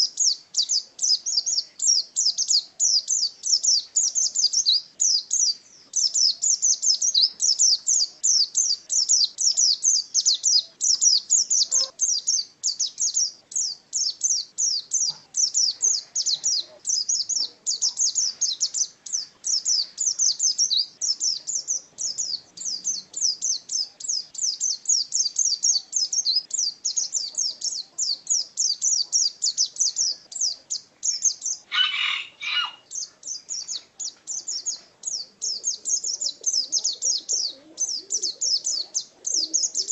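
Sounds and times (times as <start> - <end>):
songbird high-pitched chirping: 0.0 - 39.9.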